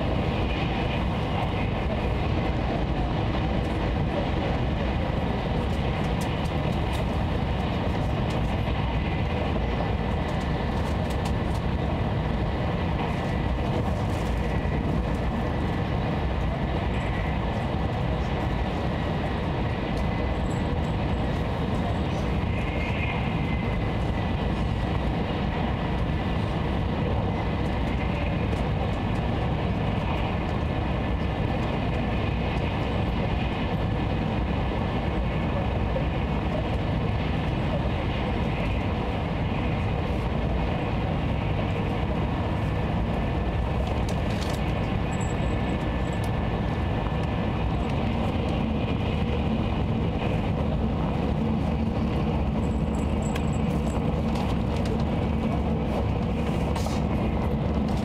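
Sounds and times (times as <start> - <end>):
train cabin rumble and rush: 0.0 - 58.0.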